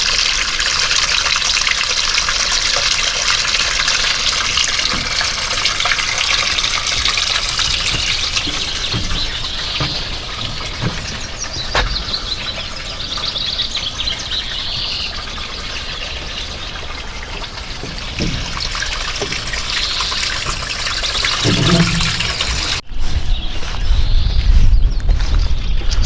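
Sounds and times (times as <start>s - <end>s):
songbirds trilling: 2.3s - 26.0s
wind noise on microphone: 21.3s - 26.0s.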